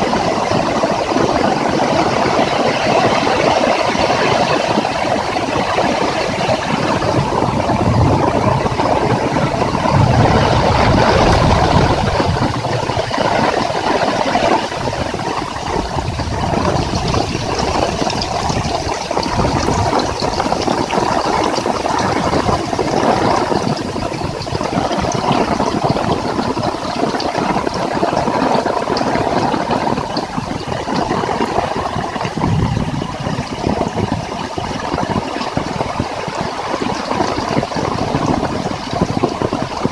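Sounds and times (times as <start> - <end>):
heavy rain pouring: 0.0 - 39.9
wind gusts rumbling: 0.0 - 39.9.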